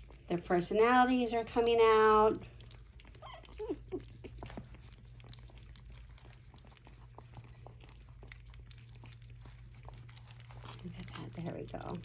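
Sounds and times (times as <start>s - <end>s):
puppies licking food: 0.0s - 12.0s
puppy squeaks: 3.2s - 4.6s.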